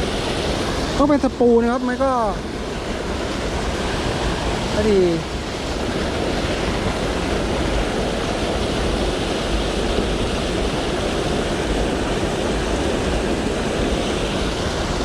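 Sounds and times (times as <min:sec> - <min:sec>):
water spilling over waterfall: 0:00.0 - 0:15.0.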